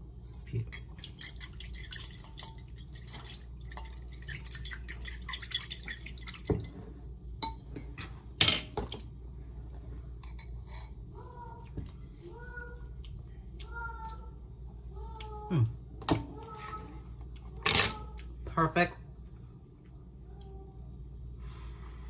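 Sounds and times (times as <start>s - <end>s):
utensil clinking against a dish: 0.3s - 6.8s.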